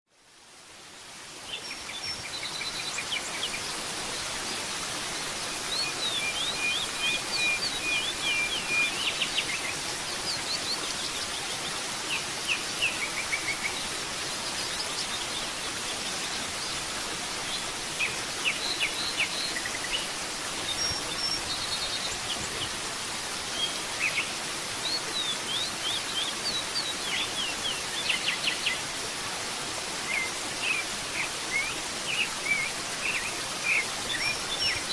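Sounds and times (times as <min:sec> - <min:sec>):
waterfall rushing: 0:00.4 - 0:34.9
birds chirping and trilling: 0:05.4 - 0:16.8.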